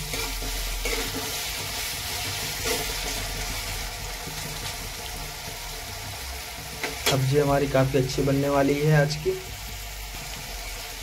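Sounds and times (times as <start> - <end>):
metal spatula scraping a pan: 0.0 - 5.0
vegetables sizzling in oil: 0.0 - 11.0.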